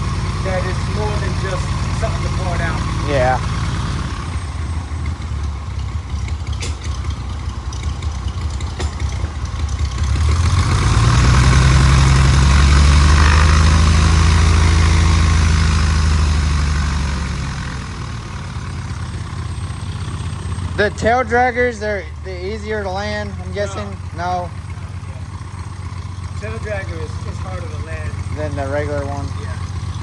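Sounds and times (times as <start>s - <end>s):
aircraft piston engine idling: 0.0s - 10.2s, 17.3s - 30.0s.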